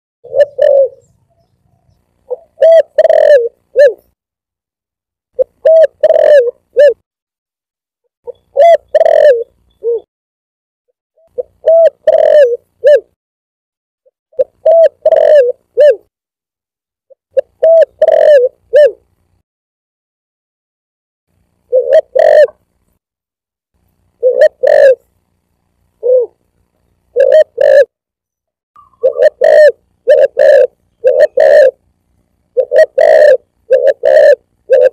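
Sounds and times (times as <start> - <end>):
dove cooing: 0.2 - 4.1, 5.4 - 7.0, 8.3 - 10.1, 11.2 - 13.2, 14.3 - 16.1, 17.3 - 19.1, 21.7 - 22.6, 24.2 - 25.0, 26.0 - 26.4, 27.0 - 27.9, 28.8 - 31.8, 32.5 - 34.9.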